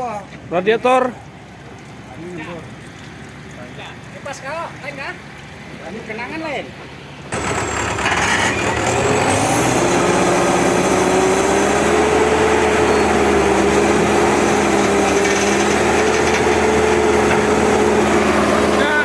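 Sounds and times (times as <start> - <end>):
heavy diesel engine running: 7.0 - 19.0.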